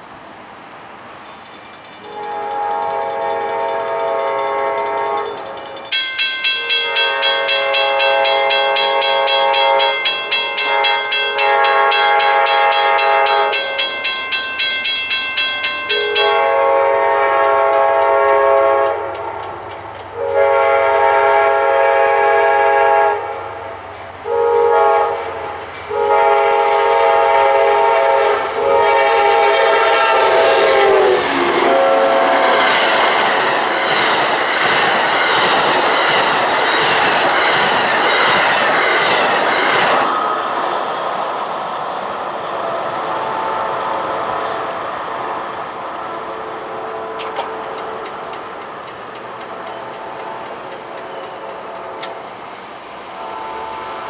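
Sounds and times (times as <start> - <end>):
locomotive air horn blasts: 2.1 - 5.8, 6.6 - 14.0, 15.9 - 19.4, 20.2 - 34.3, 53.1 - 54.0
bell ringing rapidly: 5.8 - 16.4.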